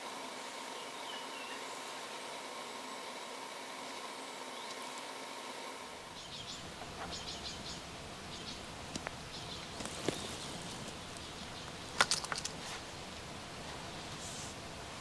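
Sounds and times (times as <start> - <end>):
small bird chirping: 6.1 - 12.0
sharp clicks and knocks: 12.0 - 12.6.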